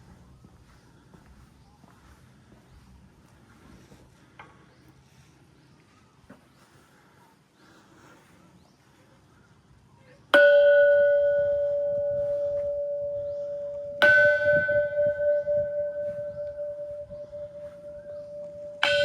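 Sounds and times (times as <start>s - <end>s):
temple bell ringing: 10.4s - 19.0s.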